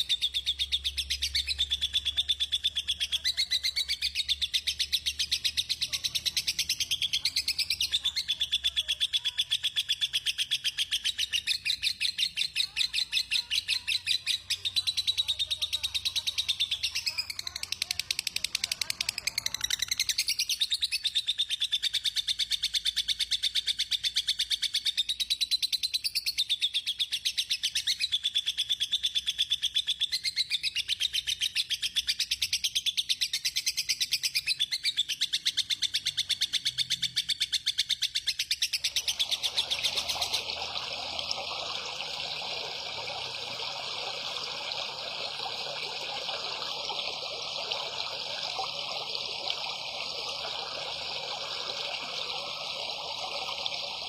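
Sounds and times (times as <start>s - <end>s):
water trickling: 38.8s - 54.0s.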